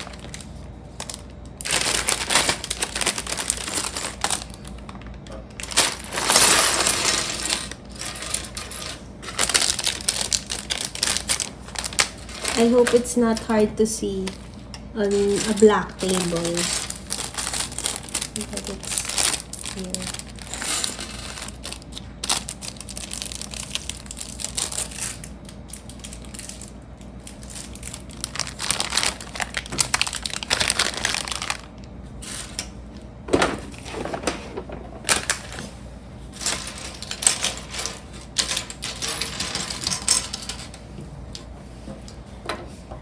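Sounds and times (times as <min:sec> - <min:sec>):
plastic bag crinkling: 0:00.0 - 0:08.5, 0:09.4 - 0:31.9.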